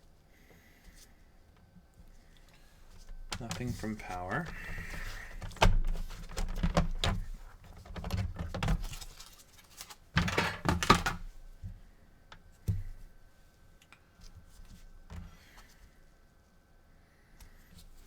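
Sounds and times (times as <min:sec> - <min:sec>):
handling clicks and knocks: 0:03.0 - 0:08.9, 0:10.2 - 0:11.3.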